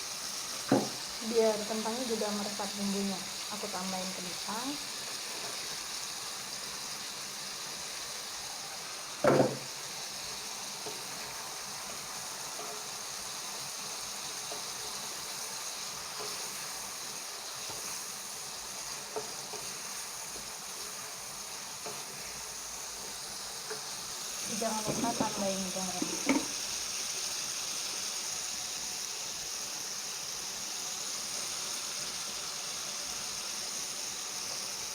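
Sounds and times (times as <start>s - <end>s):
food sizzling in oil: 0.0s - 34.9s
loud knock: 0.7s - 1.0s, 9.2s - 9.6s.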